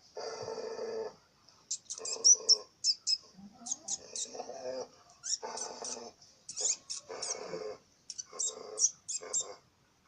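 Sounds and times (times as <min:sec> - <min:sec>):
puppy whimpering: 0:05.2 - 0:09.6.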